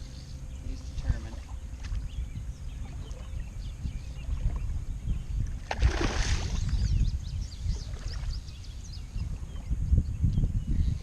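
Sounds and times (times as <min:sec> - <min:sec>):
small birds chirping: 0:00.0 - 0:11.0
wind rumbling on microphone: 0:00.0 - 0:11.0
water splash: 0:05.6 - 0:06.8.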